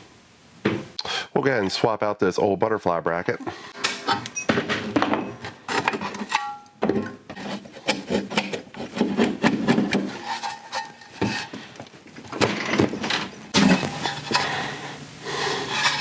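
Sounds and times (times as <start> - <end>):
metal parts scraping and rubbing: 5.4 - 6.6, 7.4 - 12.3, 13.0 - 14.7, 15.5 - 16.0.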